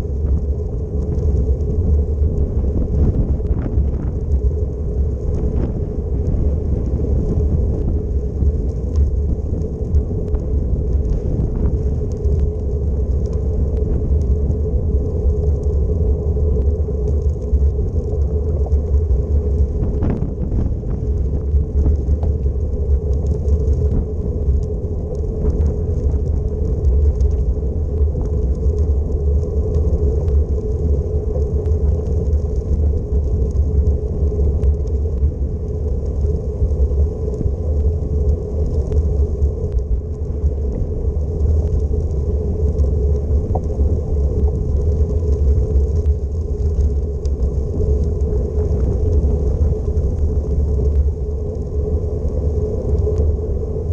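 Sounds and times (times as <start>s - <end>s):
steady hum: 0.0s - 53.9s
wind buffeting microphone: 0.0s - 53.9s
faint ticks: 5.3s - 15.9s, 16.6s - 53.4s.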